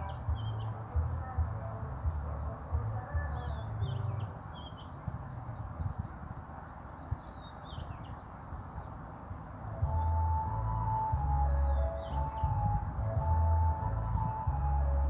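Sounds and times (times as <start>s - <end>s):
steady low rumble: 9.7s - 15.0s.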